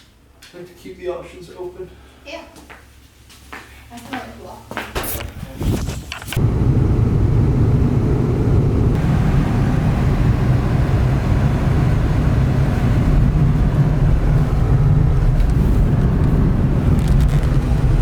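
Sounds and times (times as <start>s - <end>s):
wind buffeting microphone: 5.2s - 18.0s
plastic wheels rolling on pavement: 13.2s - 18.0s.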